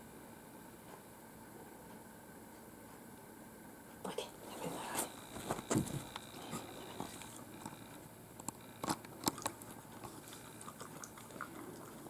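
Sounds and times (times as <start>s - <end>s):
dog crunching dry food: 8.4s - 12.0s.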